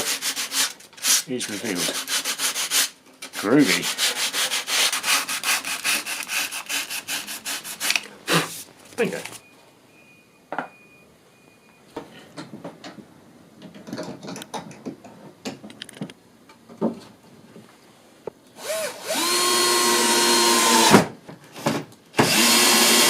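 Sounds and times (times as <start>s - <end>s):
electric power tool running: 18.6s - 21.0s, 22.2s - 23.0s.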